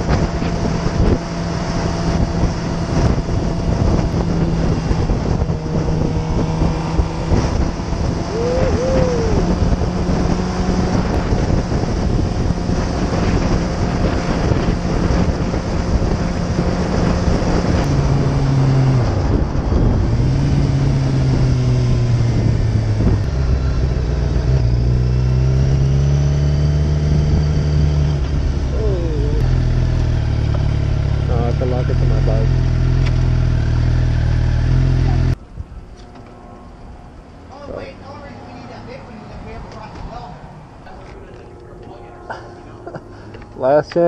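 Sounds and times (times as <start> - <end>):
wind rushing over microphone: 0.0 - 31.9
motorcycle engine running: 0.0 - 35.4.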